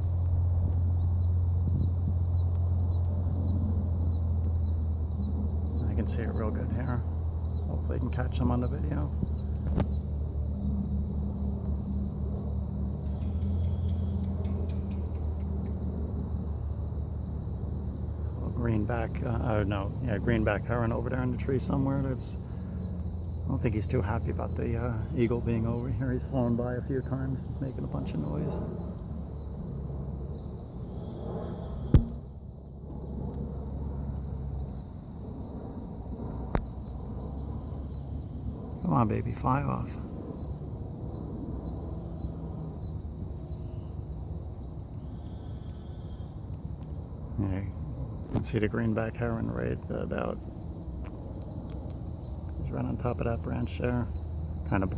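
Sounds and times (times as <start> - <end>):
low rumble: 0.0 - 38.8
insects chirping: 0.0 - 54.9
sharp knock: 31.9 - 32.3.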